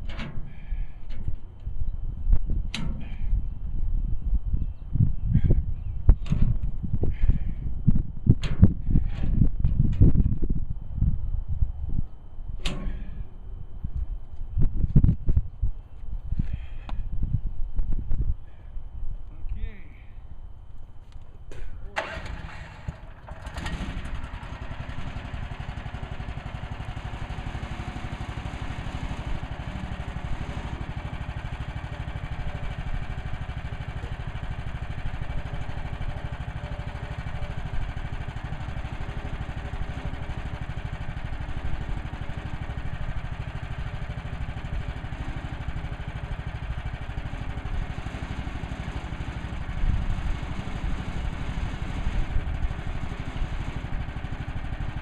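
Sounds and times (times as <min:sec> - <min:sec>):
sawmill engine running: 0:22.0 - 0:55.0.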